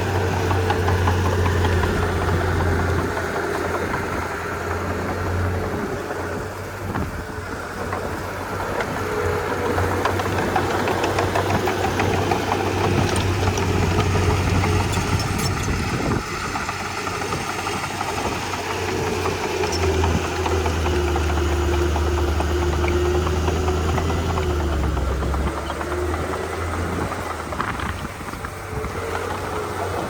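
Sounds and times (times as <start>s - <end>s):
bulldozer diesel engine running: 0.0s - 30.0s
engine whine: 0.0s - 30.0s.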